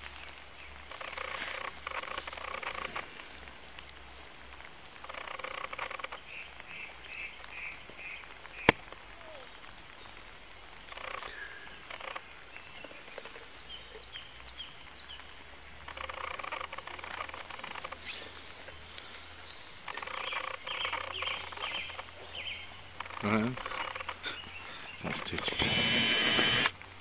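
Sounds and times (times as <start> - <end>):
birds singing: 6.0 - 15.3, 16.1 - 26.7.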